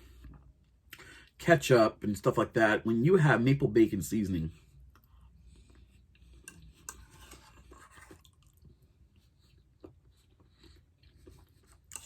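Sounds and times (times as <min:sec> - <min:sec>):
faint chewing: 0:04.6 - 0:12.0.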